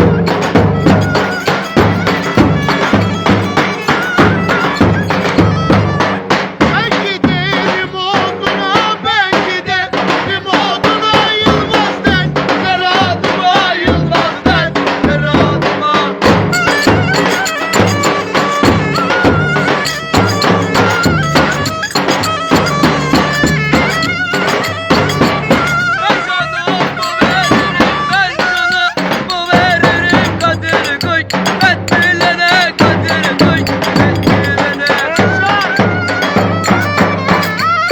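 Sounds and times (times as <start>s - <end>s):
wavering lead melody: 0.0s - 6.3s, 16.6s - 37.9s
fast dense drum rhythm: 0.0s - 37.9s.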